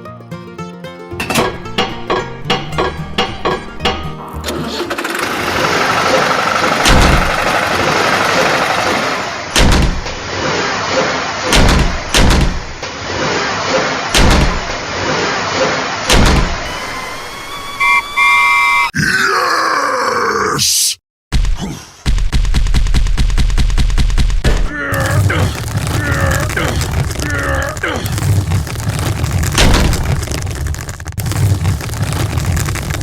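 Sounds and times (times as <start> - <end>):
heavy thumps: 1.2 - 4.2, 6.8 - 7.6, 9.6 - 10.2, 11.5 - 12.8
short pitched tones: 16.7 - 18.9.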